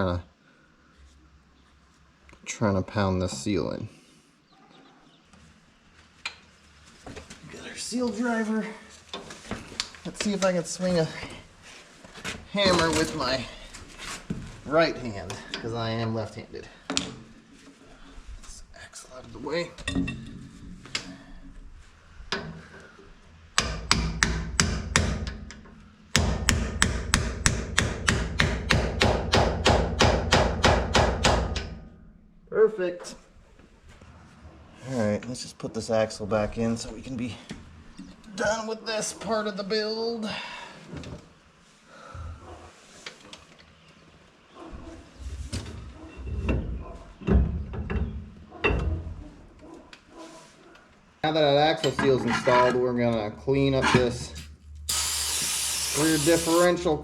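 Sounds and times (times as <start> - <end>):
hammer striking metal driver: 23.6 - 31.8
metal scraping: 51.7 - 53.0.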